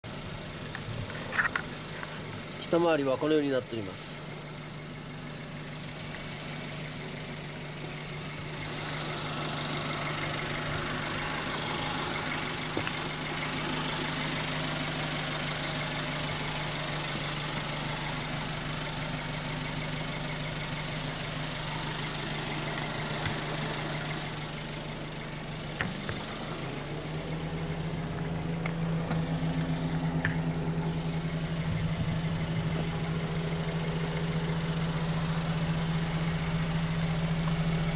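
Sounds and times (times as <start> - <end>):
petrol engine idling: 0.0 - 37.9.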